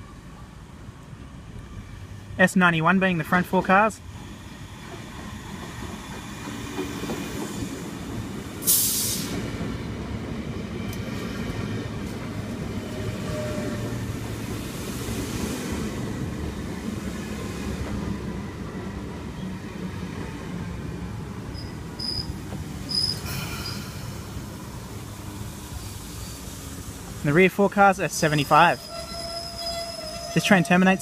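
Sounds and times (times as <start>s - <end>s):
electric train rumbling: 0.0s - 31.0s
air hiss: 8.6s - 9.4s.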